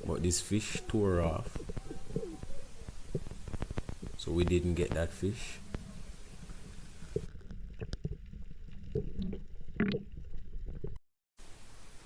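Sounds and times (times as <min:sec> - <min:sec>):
muffled underwater gurgling: 0:00.0 - 0:07.3
small squeaks: 0:00.5 - 0:04.4.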